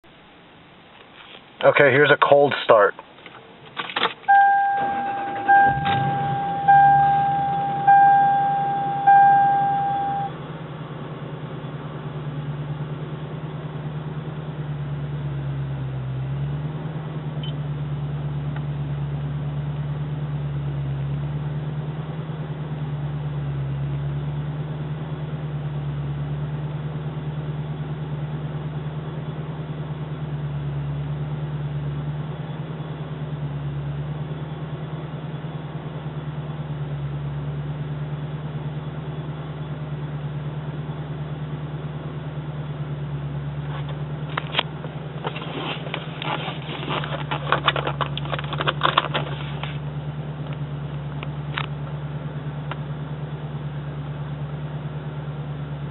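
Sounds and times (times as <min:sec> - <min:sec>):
engine starting and idling: 0:03.7 - 0:10.3
electronic warning chime: 0:04.3 - 0:10.3.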